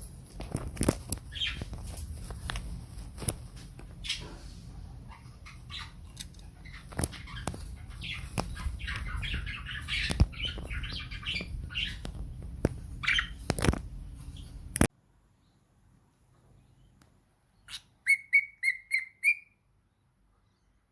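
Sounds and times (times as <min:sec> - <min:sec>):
birds fluttering: 0:00.0 - 0:14.6
short bird chirps: 0:17.6 - 0:19.6.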